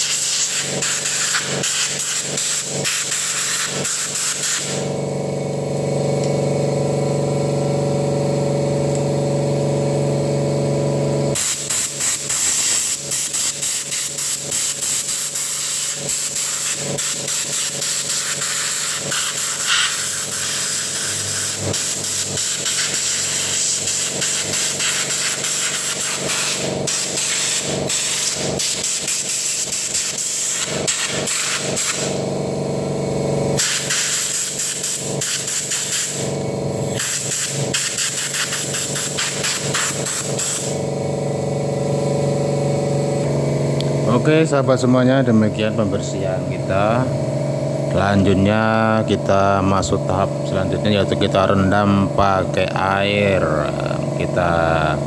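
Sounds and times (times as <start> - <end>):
hissing sputtering spray: 0.0 - 4.9, 11.4 - 32.2, 33.6 - 36.3, 36.9 - 40.8
steady hum: 0.0 - 55.0.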